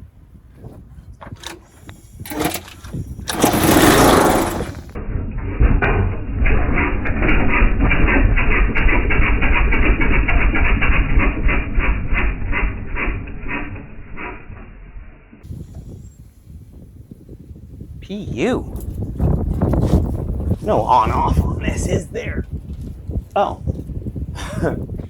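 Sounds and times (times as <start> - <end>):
pull starter rasping: 1.2 - 13.8
small gas engine running rough: 2.2 - 13.9.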